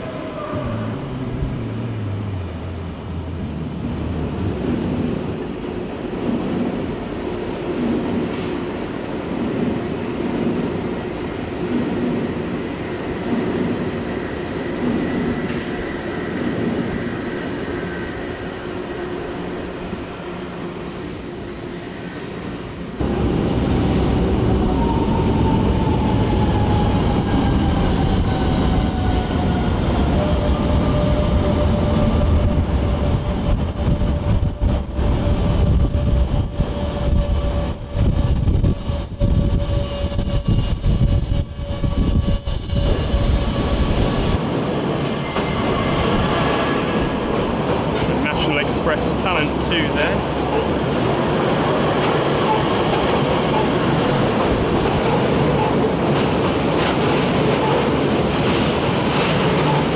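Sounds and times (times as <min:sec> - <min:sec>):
electric train approaching: 0:00.0 - 0:59.9
wheels rumbling on steel bridge: 0:00.0 - 0:59.9.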